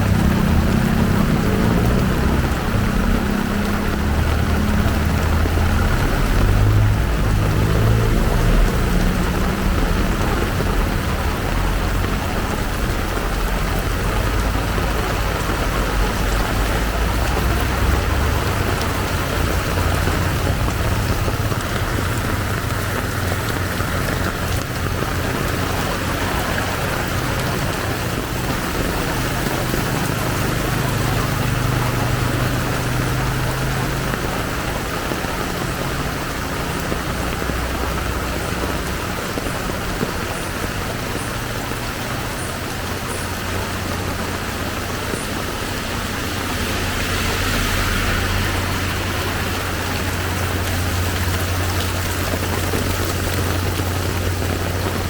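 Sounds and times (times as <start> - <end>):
heavy rain pouring: 0.0 - 55.0
vehicle engines humming: 0.0 - 55.0.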